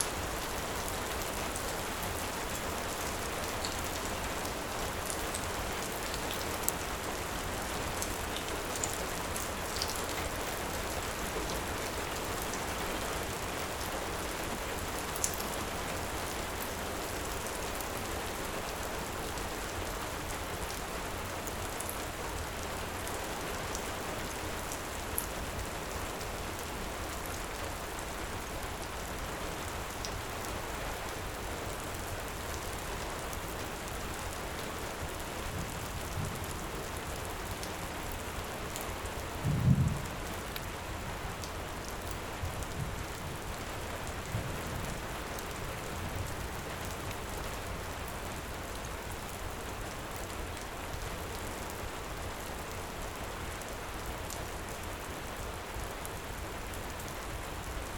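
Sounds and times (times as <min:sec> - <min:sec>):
heavy rain falling: 0:00.0 - 0:57.9.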